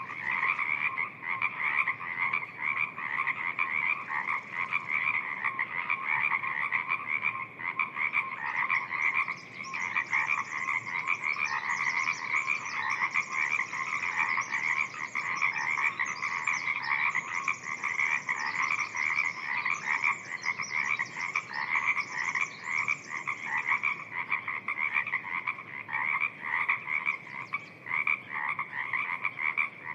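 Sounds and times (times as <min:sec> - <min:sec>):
frogs croaking: 0:00.0 - 0:29.9.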